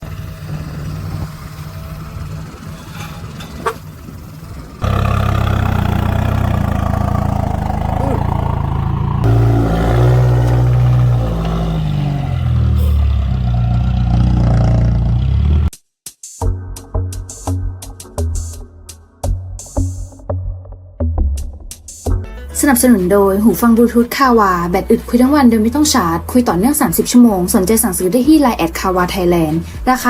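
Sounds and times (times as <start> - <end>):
dump truck diesel engine revving: 0.0 - 15.7
loud truck exhaust: 0.0 - 15.7.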